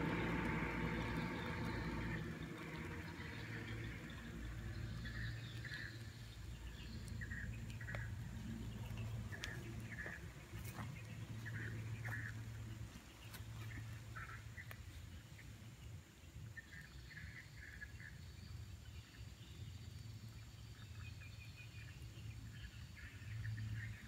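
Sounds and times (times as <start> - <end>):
faint clicks: 0.0 - 10.2
low steady rumble: 0.0 - 24.0.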